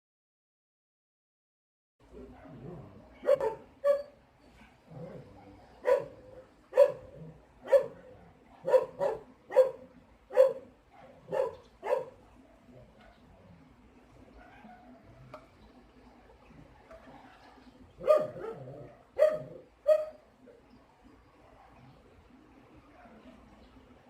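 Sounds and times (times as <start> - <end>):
dog barking: 2.2 - 12.2, 14.3 - 15.3, 18.0 - 20.2, 23.0 - 23.5.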